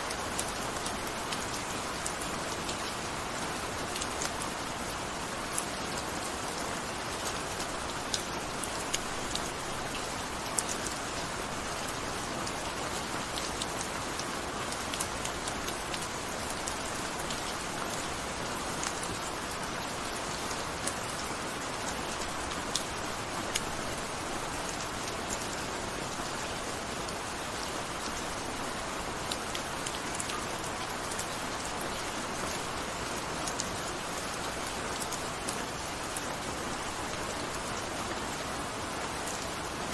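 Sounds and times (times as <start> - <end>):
gentle rain hiss: 0.0 - 39.9.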